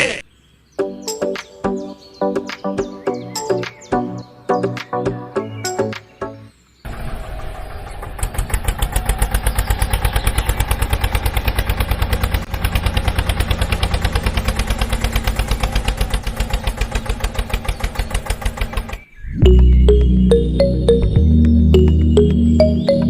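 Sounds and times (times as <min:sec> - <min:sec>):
tractor engine thumping: 0:06.9 - 0:19.1.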